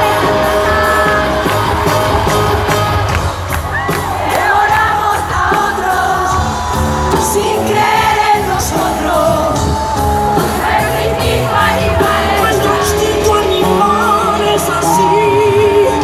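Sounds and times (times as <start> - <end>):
crowd shouting: 0.0 - 16.0
drums: 0.0 - 16.0
live band playing pop song: 0.0 - 16.0
person singing: 7.1 - 16.0.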